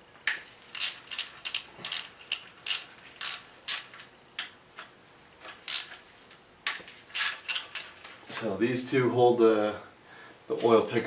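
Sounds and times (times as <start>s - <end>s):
ratchet wrench clicking: 0.7s - 4.0s, 5.6s - 6.0s, 7.1s - 8.2s.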